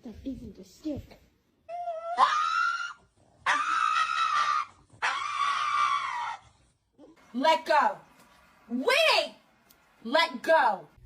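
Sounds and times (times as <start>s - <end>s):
high-pitched screams: 1.8s - 6.6s.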